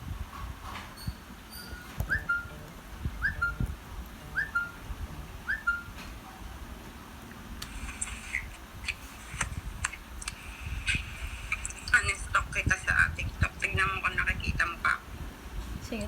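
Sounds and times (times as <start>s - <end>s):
whistled call: 1.5s - 3.6s, 4.3s - 4.8s, 5.4s - 5.9s.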